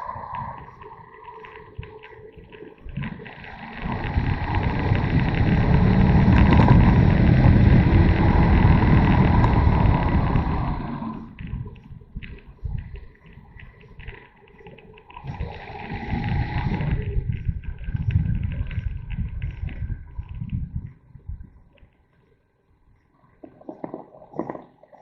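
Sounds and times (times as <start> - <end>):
wind rush on microphone: 0.0 - 14.2, 15.2 - 21.8
motorcycle engine: 3.7 - 11.3.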